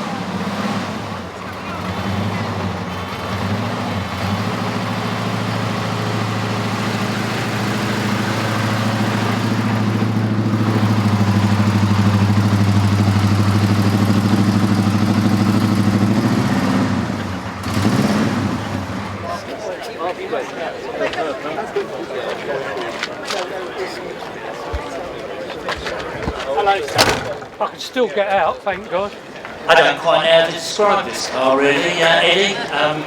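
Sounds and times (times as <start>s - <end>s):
car engine at low revs: 0.0s - 19.5s.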